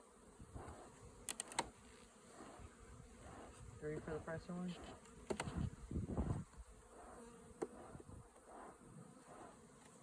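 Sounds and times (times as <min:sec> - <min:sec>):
bees buzzing: 0:00.0 - 0:10.0
sharp click: 0:01.3 - 0:01.7.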